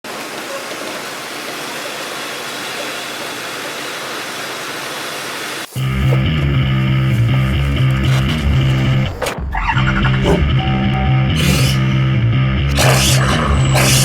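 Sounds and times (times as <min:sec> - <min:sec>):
intro music with deep low tone: 0:05.8 - 0:13.8.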